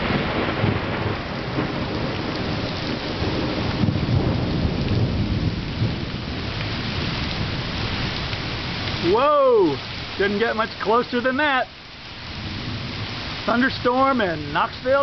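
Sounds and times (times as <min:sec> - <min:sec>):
thunder rumbling: 0:00.0 - 0:11.6, 0:12.2 - 0:15.0
heavy rain: 0:00.0 - 0:15.0.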